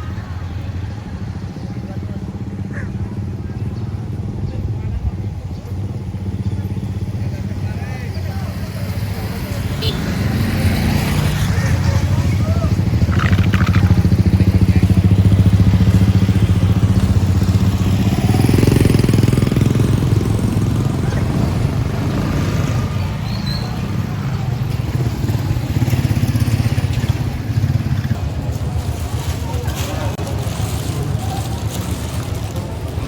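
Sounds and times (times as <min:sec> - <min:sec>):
small motorcycle engine running: 0:05.7 - 0:23.3.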